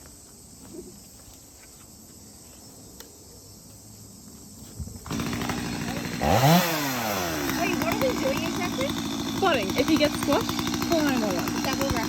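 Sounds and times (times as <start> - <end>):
crickets chirping: 0.0 - 5.8.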